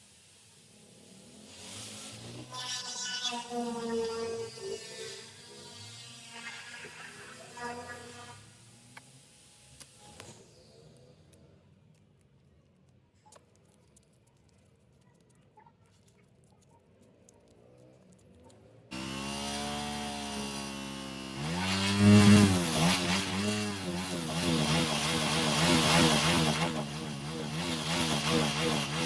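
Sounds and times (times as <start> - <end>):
motorcycle engine revving: 18.9 - 29.0.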